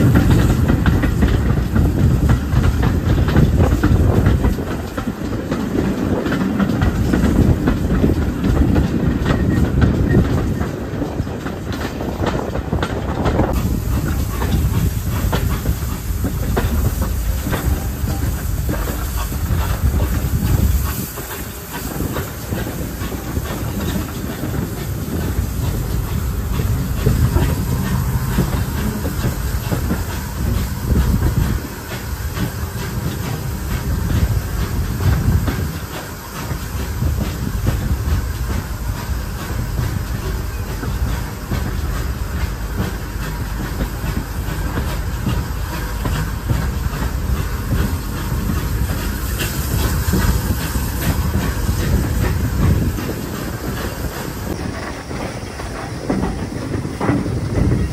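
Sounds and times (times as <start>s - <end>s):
steam locomotive chugging: 0.0s - 57.9s
train wheels rumbling: 0.0s - 57.9s
wheels clacking over rail joints: 0.0s - 57.9s.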